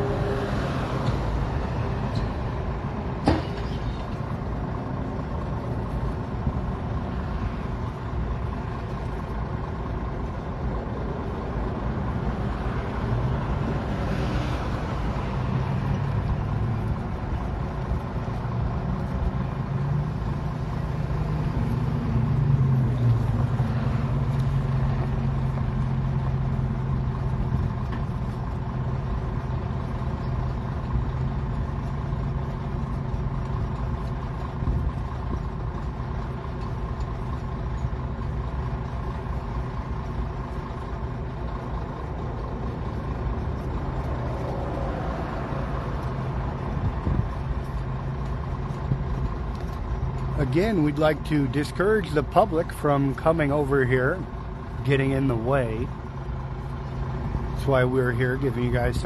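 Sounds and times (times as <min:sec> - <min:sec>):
heavy equipment diesel engines: 0:00.0 - 0:59.0.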